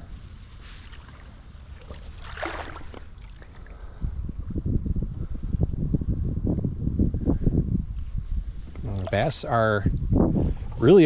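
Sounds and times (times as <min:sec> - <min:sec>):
insects trilling: 0:00.0 - 0:11.0
rustling and knocking near microphone: 0:08.0 - 0:09.3.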